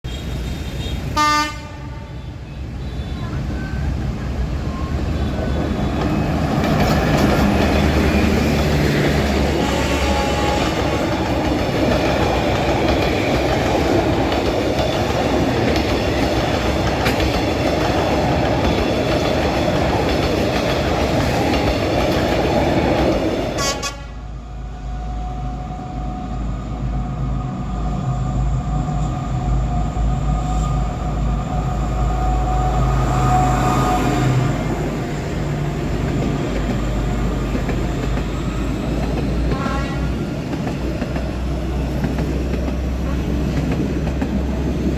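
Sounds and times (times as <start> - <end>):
diesel train passing: 0.1 - 44.9
horn-like tones: 1.2 - 2.4, 9.5 - 11.1, 23.6 - 26.2
wheel and rail noise: 2.4 - 44.9.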